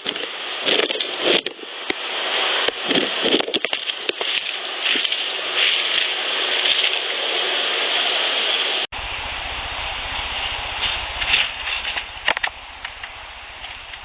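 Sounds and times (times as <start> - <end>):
recorder handling rustle: 0.0 - 2.0, 2.6 - 7.1, 10.8 - 14.0
low buzz: 8.7 - 14.0.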